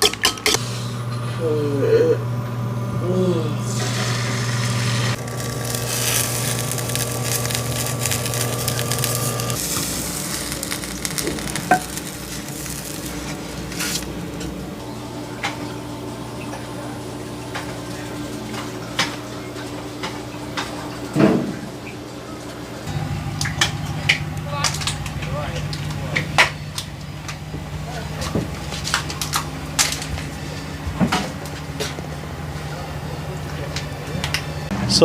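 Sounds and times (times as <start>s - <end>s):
utensils clinking on pan: 0.0s - 0.6s
food sizzling: 3.7s - 14.7s.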